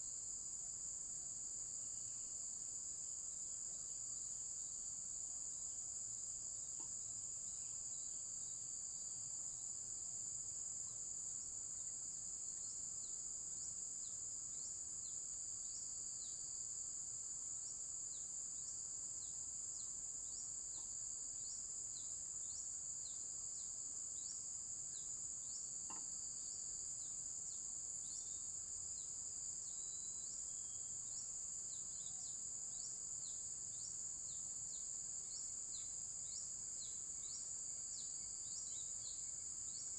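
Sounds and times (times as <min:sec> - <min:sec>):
high-pitched insect chorus: 0:00.0 - 0:39.9
faint click: 0:06.8 - 0:07.0, 0:25.8 - 0:26.1.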